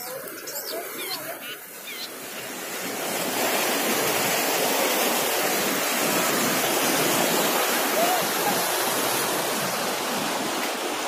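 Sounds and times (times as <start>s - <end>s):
bird chirping: 0.0s - 2.5s
waterfall rushing: 0.0s - 11.0s.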